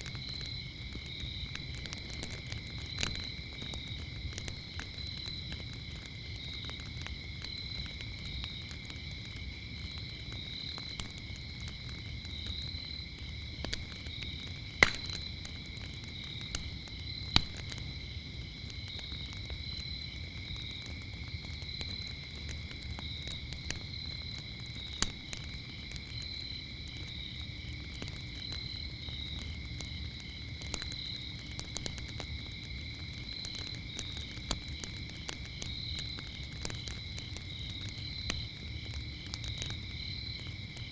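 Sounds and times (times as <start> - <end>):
crickets chirping: 0.0 - 40.9
fire pops and snaps: 0.0 - 40.9
low rumble of flames: 0.0 - 40.9
wood fire crackling: 0.0 - 40.9.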